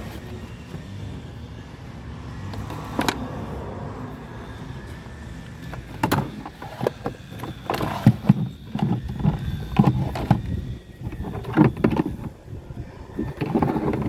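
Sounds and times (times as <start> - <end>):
knocks and clanks on a car: 5.8 - 10.5.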